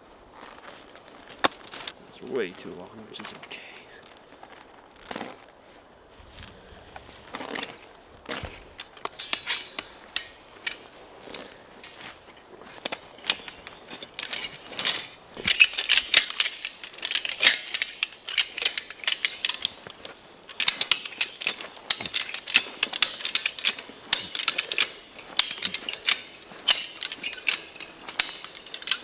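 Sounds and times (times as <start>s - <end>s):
metallic clicking of fence wire: 7.0s - 29.0s.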